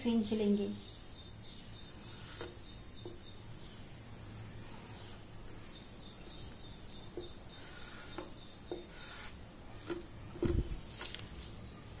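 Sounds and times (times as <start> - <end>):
small bird chirping: 0.4 - 4.0, 4.9 - 9.6
hands handling newspaper: 9.9 - 11.7.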